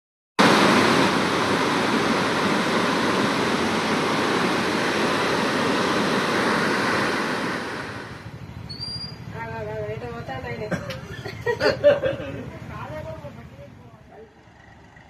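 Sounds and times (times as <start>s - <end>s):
loud rush of water: 0.4s - 8.4s.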